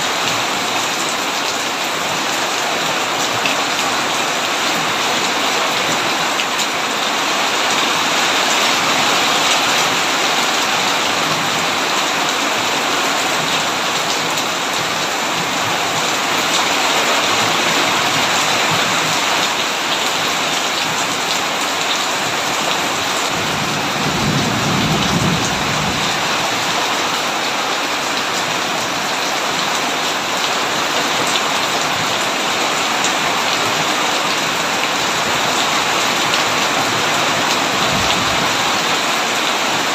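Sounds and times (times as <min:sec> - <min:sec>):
heavy rain on a tin roof: 0:00.0 - 0:39.9
thunder rumble: 0:23.4 - 0:26.7.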